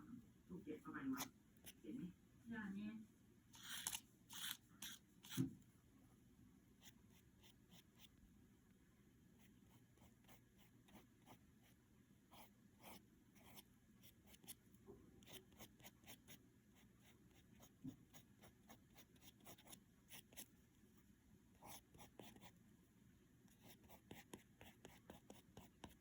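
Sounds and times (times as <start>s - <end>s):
paintbrush scratching on painting: 3.6s - 5.4s.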